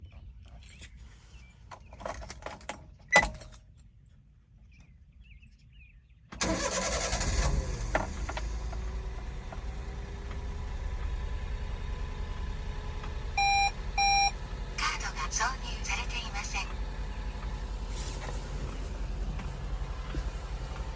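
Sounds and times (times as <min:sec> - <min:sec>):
small engine starting and idling: 0:06.4 - 0:20.9
short electronic beeps: 0:13.4 - 0:14.3.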